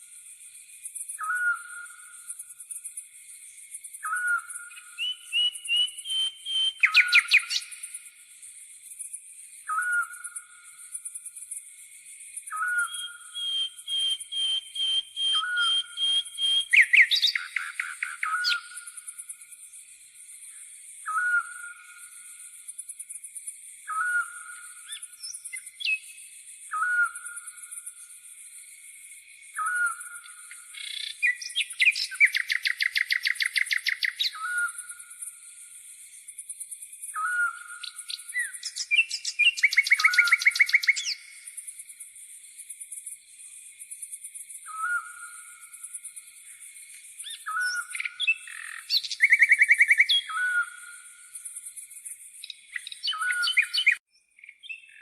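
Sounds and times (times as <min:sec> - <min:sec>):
birdsong: 0:04.0 - 0:07.9, 0:12.5 - 0:18.9, 0:37.1 - 0:41.4, 0:44.6 - 0:55.0.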